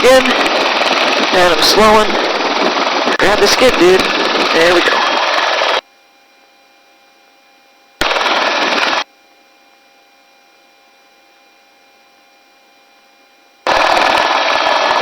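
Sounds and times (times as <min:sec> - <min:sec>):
wind noise: 0:00.0 - 0:05.3
helicopter rotor: 0:00.0 - 0:05.8, 0:08.0 - 0:09.0, 0:13.6 - 0:15.0.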